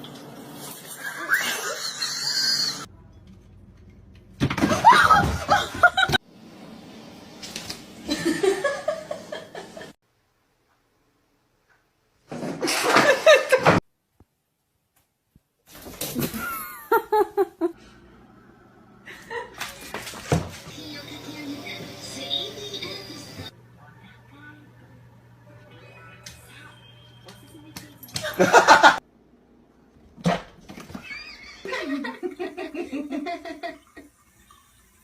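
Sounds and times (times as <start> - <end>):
people laughing: 4.7 - 6.2, 8.1 - 10.0, 12.7 - 13.8, 19.0 - 19.9, 28.1 - 29.0, 31.0 - 34.0.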